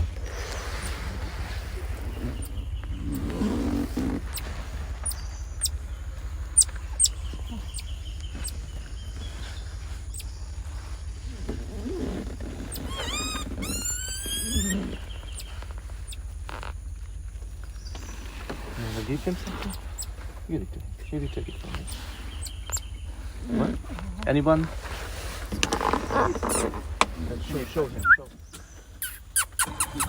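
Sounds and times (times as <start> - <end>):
steady low hum: 0.0 - 30.0
monkey squeaking call: 6.6 - 8.6, 11.8 - 16.2, 26.1 - 26.8, 28.0 - 28.2, 29.0 - 30.0.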